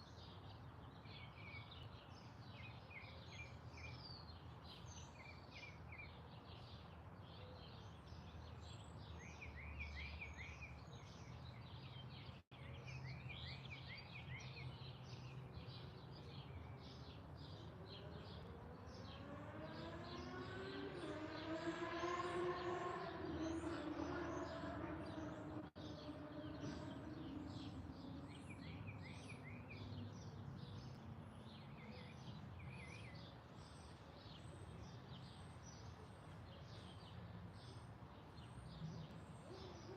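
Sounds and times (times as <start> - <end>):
engine passing by: 16.5 - 35.5
small birds chirping: 22.4 - 39.9.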